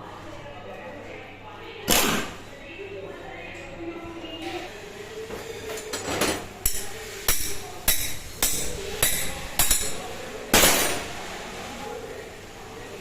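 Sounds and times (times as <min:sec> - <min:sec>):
hammer tapping on metal: 0:06.6 - 0:10.0.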